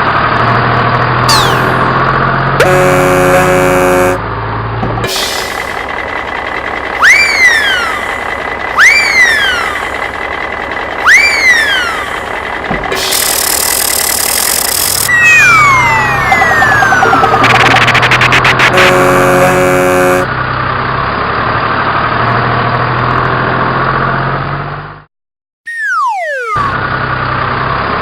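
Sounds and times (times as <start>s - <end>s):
whistle sliding down in pitch: 1.3s - 1.9s, 7.0s - 8.2s, 8.8s - 9.9s, 11.0s - 12.2s, 15.1s - 17.8s, 25.7s - 26.8s
swooping chirps: 1.3s - 2.0s, 7.0s - 10.0s, 11.0s - 12.3s, 13.1s - 18.6s, 25.7s - 26.9s
cartoon horn honking: 1.3s - 4.2s, 18.6s - 20.4s.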